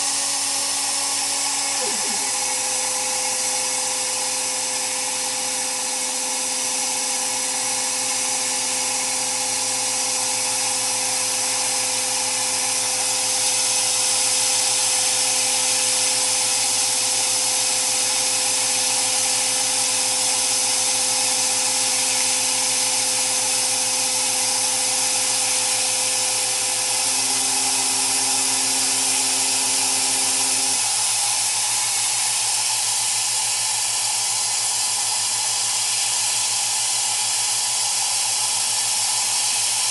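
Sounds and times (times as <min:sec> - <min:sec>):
machine drive whine: 0:00.0 - 0:17.4, 0:21.6 - 0:32.3.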